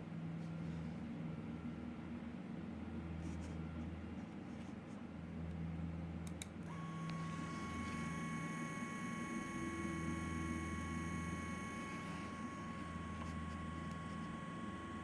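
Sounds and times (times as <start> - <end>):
quadcopter motors humming: 6.7 - 15.0.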